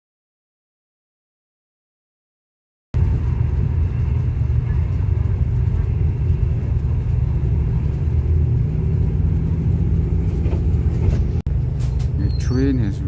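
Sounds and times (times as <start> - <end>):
diesel train rumble: 3.0 - 13.0.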